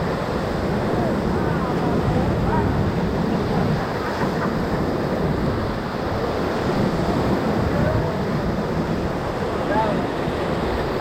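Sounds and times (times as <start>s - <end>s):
whitewater rushing: 0.0s - 11.0s
wind noise on microphone: 0.0s - 11.0s.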